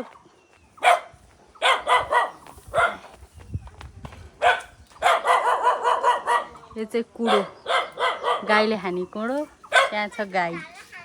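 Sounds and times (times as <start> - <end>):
dog barking: 0.8 - 3.1, 4.4 - 6.6, 7.2 - 8.7, 9.7 - 10.1.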